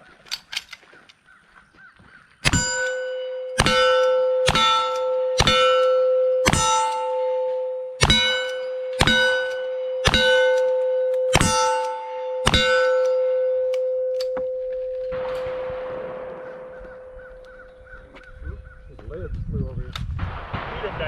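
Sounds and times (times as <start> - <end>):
revolver gunshots: 2.4 - 13.9, 15.1 - 18.1, 20.1 - 21.0
steel target clanging: 2.4 - 18.0.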